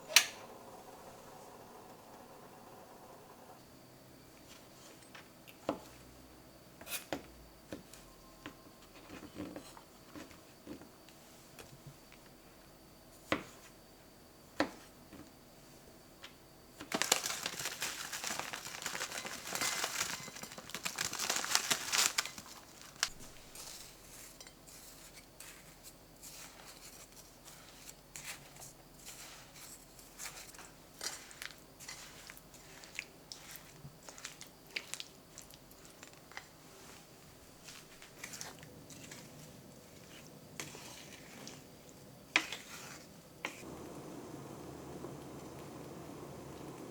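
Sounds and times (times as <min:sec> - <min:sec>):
crinkling and rustling: 0:16.8 - 0:44.0.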